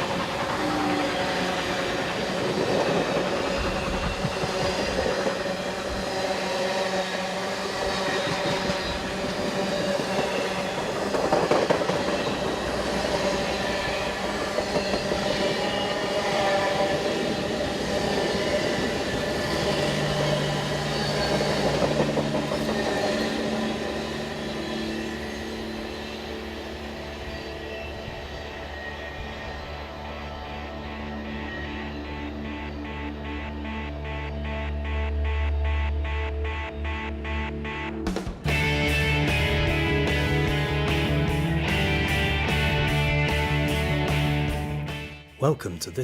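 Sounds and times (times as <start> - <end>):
train wheels on rails: 0.0 - 31.8.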